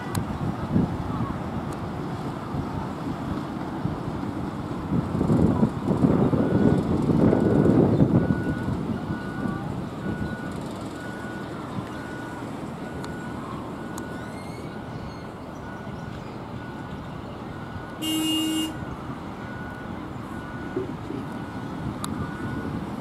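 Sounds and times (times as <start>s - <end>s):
high beep: 18.0s - 18.8s
train horn toot: 18.0s - 18.8s.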